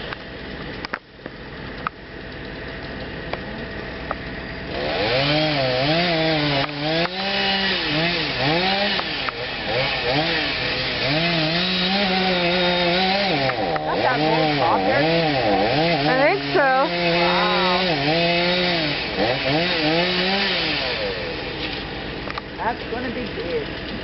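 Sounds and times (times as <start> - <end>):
chainsaw cutting wood: 0.0 - 24.0.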